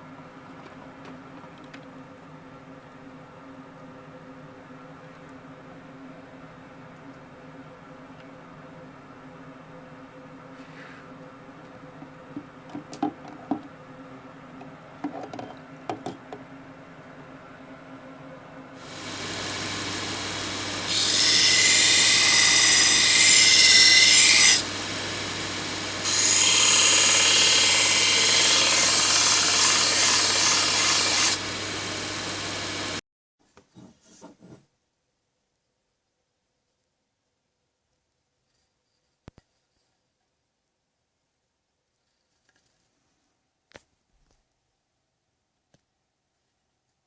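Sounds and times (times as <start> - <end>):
electric grinder humming: 18.8 - 33.0
steel grinding: 18.8 - 33.0.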